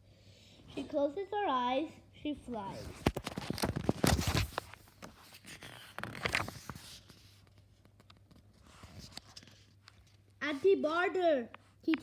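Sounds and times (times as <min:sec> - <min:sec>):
faint electrical hum: 0:00.0 - 0:12.0
paper rustling and crackling: 0:02.8 - 0:10.2.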